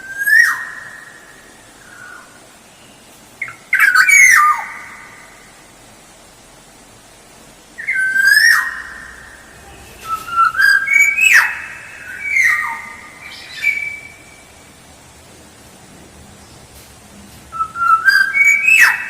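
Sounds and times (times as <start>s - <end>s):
bird whistled calls: 0.0s - 1.0s, 3.4s - 5.0s, 7.8s - 9.2s, 9.9s - 14.4s, 17.5s - 19.0s.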